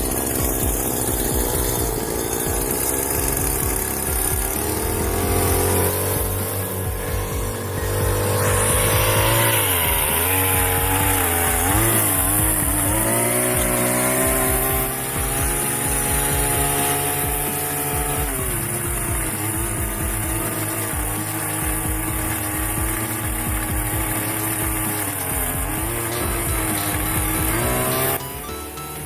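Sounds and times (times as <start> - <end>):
engine running: 0.0 - 29.0.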